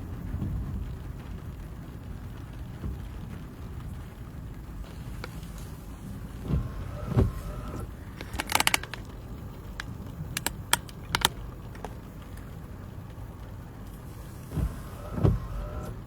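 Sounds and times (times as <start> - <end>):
dull thumps: 4.8 - 12.0
clicks and jingling rattles: 8.1 - 12.5.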